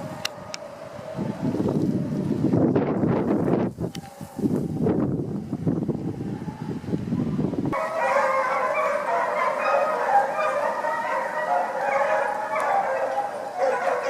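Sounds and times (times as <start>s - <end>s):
hounds baying: 0.0s - 2.2s, 7.7s - 14.0s
wind buffeting microphone: 0.0s - 14.0s.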